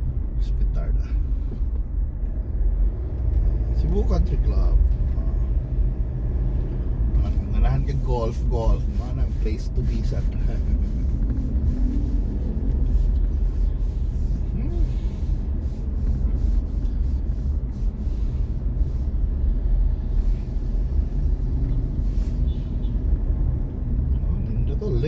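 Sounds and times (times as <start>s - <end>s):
car engine rumble: 0.0s - 25.0s
road noise: 0.0s - 25.0s.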